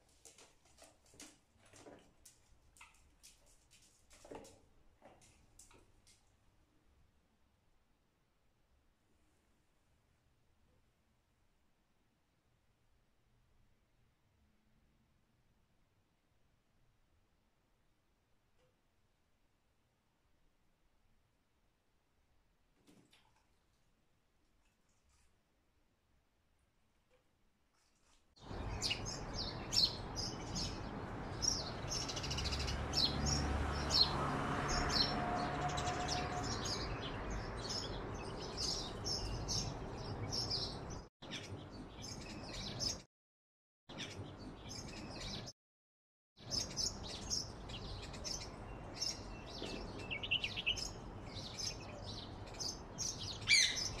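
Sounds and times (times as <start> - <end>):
small birds chirping: 28.4 - 43.1, 43.9 - 45.5, 46.4 - 54.0.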